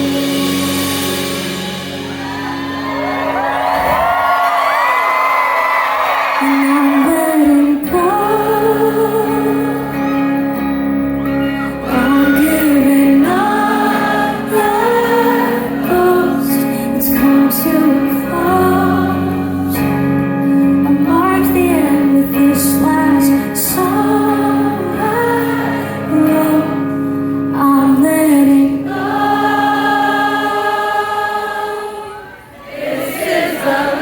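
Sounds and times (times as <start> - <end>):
band playing low chords: 0.0 - 4.5, 7.8 - 30.7
woman singing: 6.4 - 32.3.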